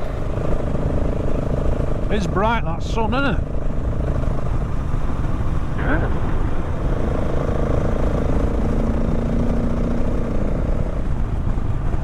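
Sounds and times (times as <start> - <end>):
motorcycle engine cruising: 0.0 - 12.0
road noise: 0.0 - 12.0
wind rumbling on microphone: 3.4 - 12.0.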